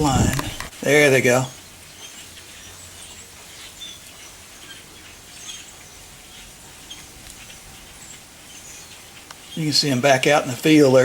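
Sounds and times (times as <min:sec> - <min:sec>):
grackles chirping: 0:00.0 - 0:00.8
low outdoor background: 0:00.0 - 0:11.0.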